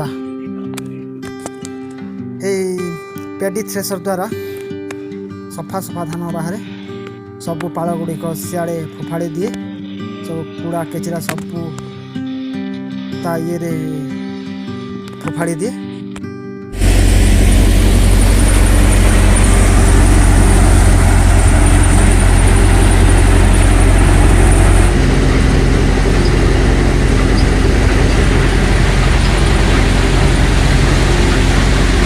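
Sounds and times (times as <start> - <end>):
thresher machine drone: 16.7 - 32.0
faint high whine: 16.8 - 32.0.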